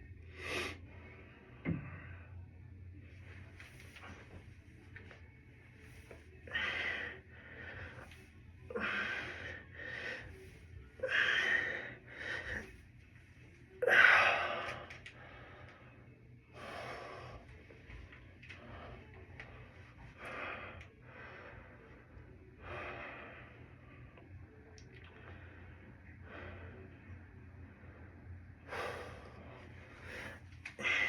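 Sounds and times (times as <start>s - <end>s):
person breathing hard: 6.4s - 12.8s, 27.8s - 31.0s.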